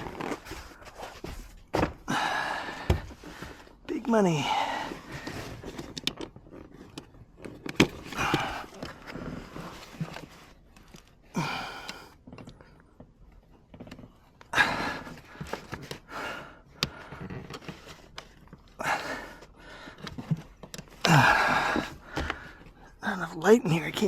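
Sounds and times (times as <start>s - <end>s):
person breathing out hard: 2.0s - 3.8s, 8.1s - 9.6s, 11.3s - 12.2s, 18.8s - 20.2s, 21.0s - 23.0s
clicks and knocks of parts: 5.3s - 9.2s, 19.9s - 21.1s.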